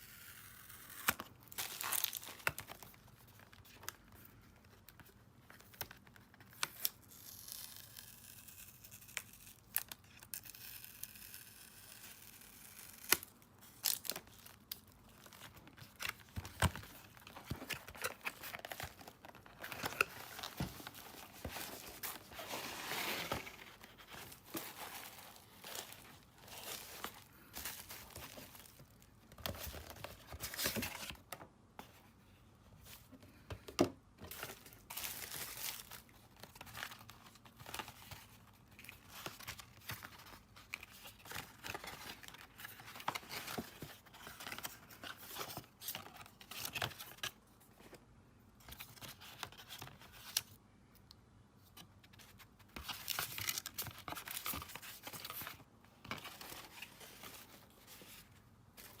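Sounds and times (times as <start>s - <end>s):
wrapping tearing and crinkling: 0.0s - 2.9s, 6.6s - 29.0s.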